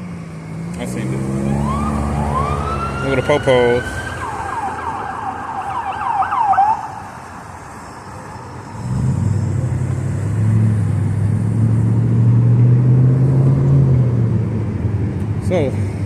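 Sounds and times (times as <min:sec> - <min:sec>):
vehicle engine humming: 0:00.0 - 0:16.0
police siren yelping: 0:01.3 - 0:07.2.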